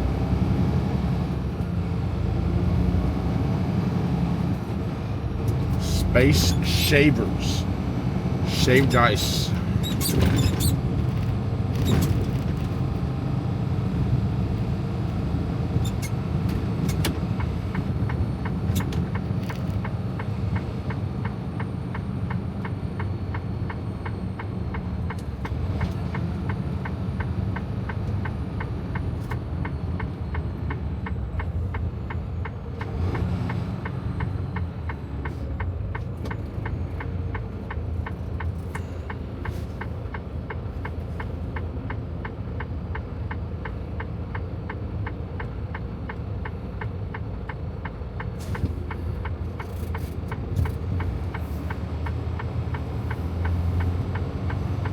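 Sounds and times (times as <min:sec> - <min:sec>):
diesel engine rumble: 0:00.0 - 0:54.9
turn signal ticking: 0:05.4 - 0:09.8, 0:15.7 - 0:54.9.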